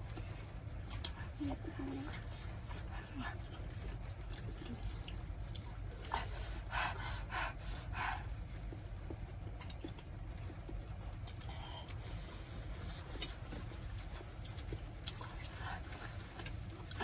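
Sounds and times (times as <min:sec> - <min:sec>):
low steady hum: 0:00.0 - 0:17.0
breathy mouth noises eating: 0:00.1 - 0:17.0.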